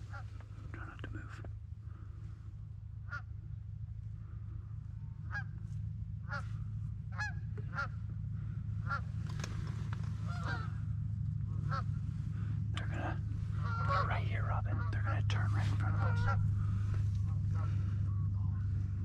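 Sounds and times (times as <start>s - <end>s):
steady low hum: 0.0s - 19.0s
geese honking: 3.0s - 3.3s, 5.2s - 5.6s, 6.2s - 10.8s, 11.5s - 19.0s.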